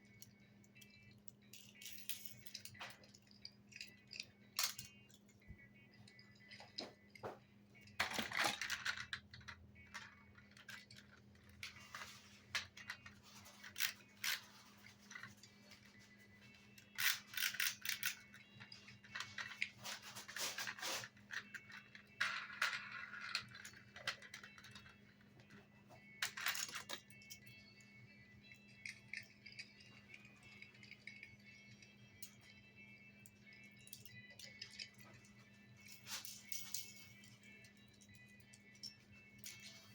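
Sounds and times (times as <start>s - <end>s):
plastic toy vehicles rattling: 7.9s - 16.0s, 16.9s - 25.0s.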